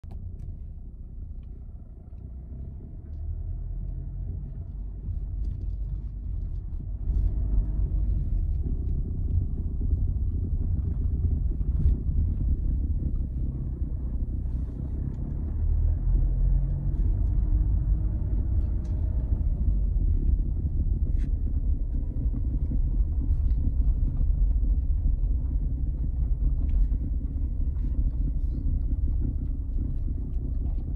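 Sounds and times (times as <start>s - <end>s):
diesel car rumble: 0.0s - 30.9s
faint rattling clicks and knocks: 16.6s - 30.9s.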